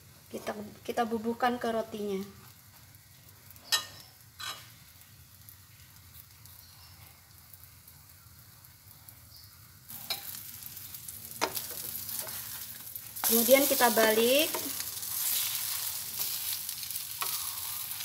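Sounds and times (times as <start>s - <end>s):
bread sizzling in butter: 0.0s - 18.0s.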